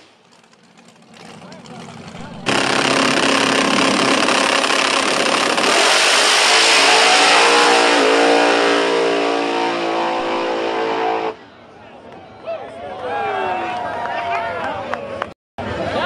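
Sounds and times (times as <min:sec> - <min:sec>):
race car engine at full throttle: 0:00.0 - 0:11.4.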